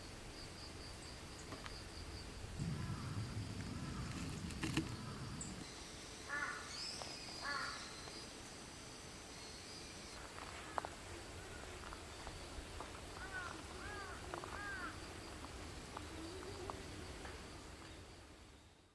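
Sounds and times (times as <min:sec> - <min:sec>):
crow cawing: 0:02.6 - 0:04.2, 0:06.3 - 0:06.7, 0:07.4 - 0:07.8, 0:13.2 - 0:15.0.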